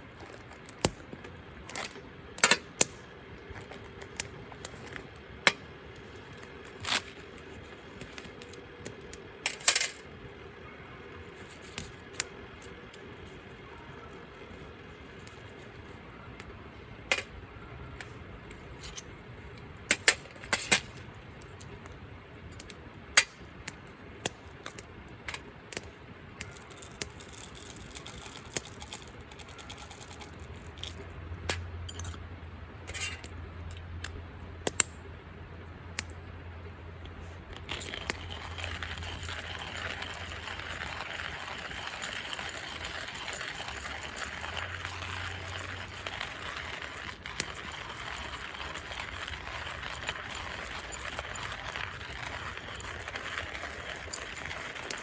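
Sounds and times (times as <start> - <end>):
camp cookware clinking: 37.5 - 55.0.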